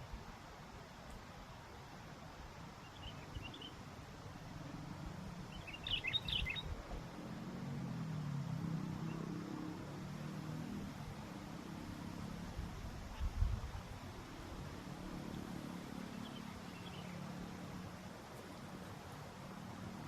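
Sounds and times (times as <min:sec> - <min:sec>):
low wind rumble: 0:00.0 - 0:20.0
bird chirping calls: 0:02.8 - 0:03.8, 0:05.4 - 0:06.8, 0:16.0 - 0:17.4.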